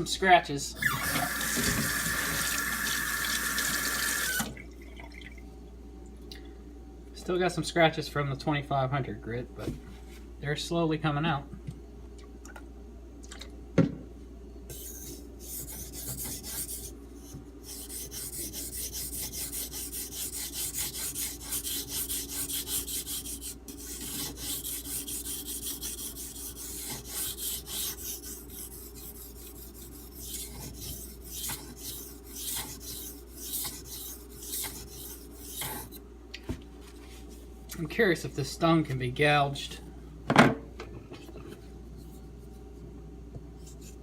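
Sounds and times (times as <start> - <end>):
knife rasping on whetstone: 14.7 - 36.0.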